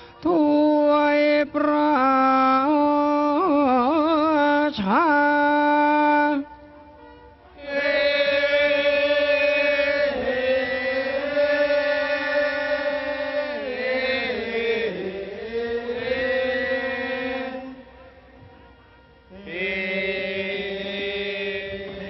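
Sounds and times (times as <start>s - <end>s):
person chanting long notes: 5.1s - 22.0s.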